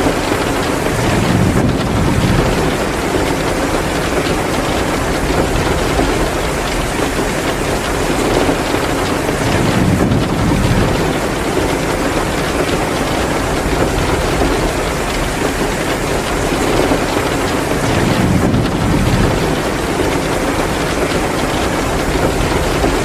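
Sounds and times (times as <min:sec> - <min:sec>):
heavy rain falling: 0:00.0 - 0:23.0
wood fire crackling: 0:00.0 - 0:23.0.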